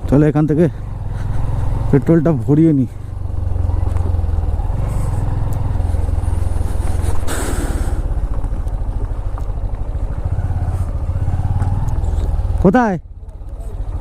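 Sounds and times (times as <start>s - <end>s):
motorcycle engine idling: 0.0s - 14.0s
brief hiss: 7.0s - 8.0s.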